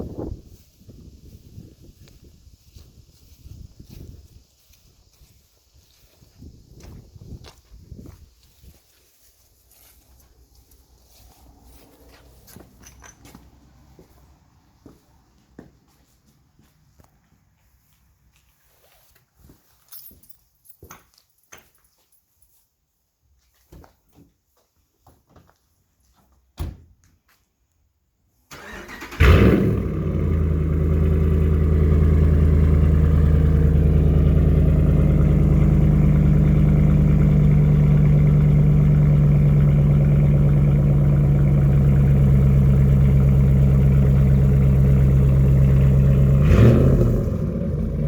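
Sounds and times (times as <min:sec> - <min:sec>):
engine cranking and idling: 0:28.5 - 0:48.0.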